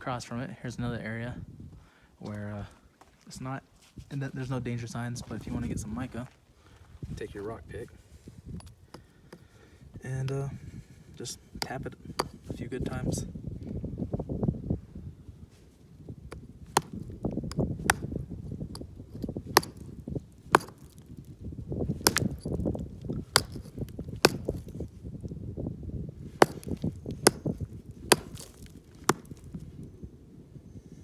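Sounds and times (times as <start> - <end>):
rock pick striking rock: 8.5 - 9.5, 10.1 - 10.6, 11.6 - 13.1, 16.3 - 25.3, 26.2 - 29.9
rough low scraping: 16.3 - 25.3, 26.2 - 29.8.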